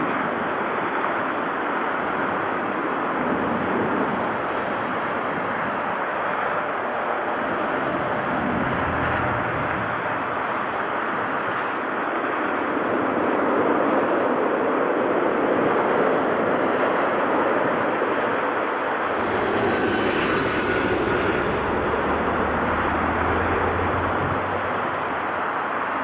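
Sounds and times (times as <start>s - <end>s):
jet engines roaring: 4.2s - 12.8s, 16.3s - 26.0s.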